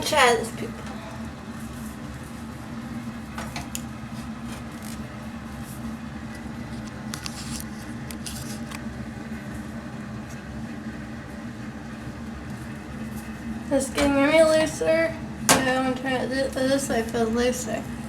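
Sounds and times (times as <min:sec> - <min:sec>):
exhaust fan humming: 0:00.0 - 0:18.0.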